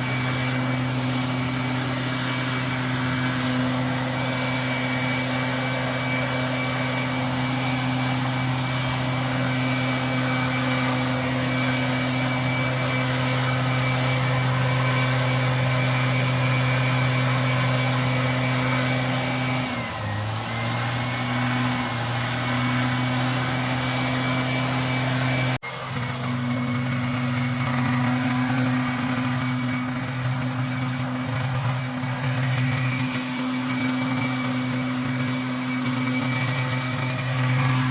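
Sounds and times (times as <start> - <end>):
engine running steadily: 0.0 - 37.9
thin high whine: 21.4 - 37.9.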